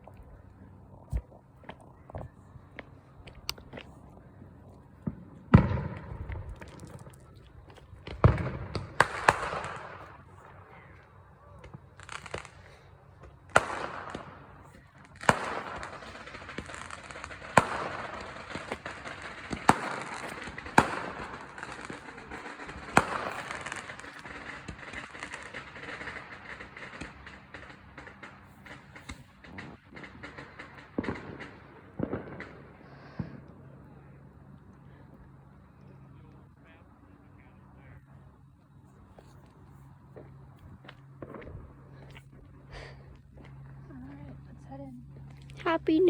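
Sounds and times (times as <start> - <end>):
firecrackers banging: 0.7 - 36.6.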